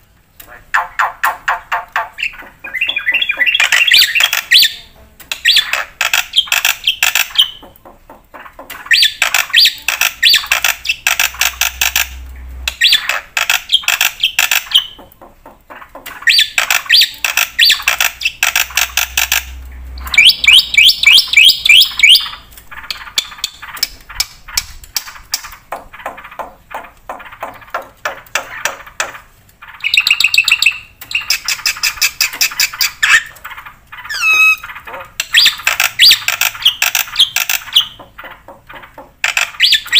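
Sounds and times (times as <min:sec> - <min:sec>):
rising whistled bird notes: 0:34.1 - 0:34.6
starling singing harsh chatter: 0:34.1 - 0:34.6.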